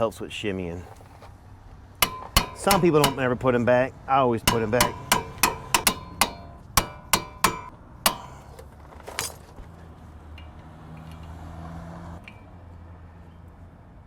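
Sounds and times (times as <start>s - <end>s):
low steady hum: 1.0s - 8.7s
hammer striking steel: 2.0s - 3.8s, 4.4s - 8.6s.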